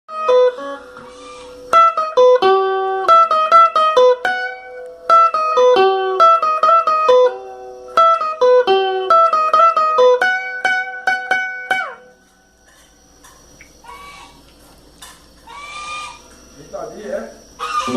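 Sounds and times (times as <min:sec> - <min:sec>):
guitar picking a melody: 0:00.1 - 0:13.7.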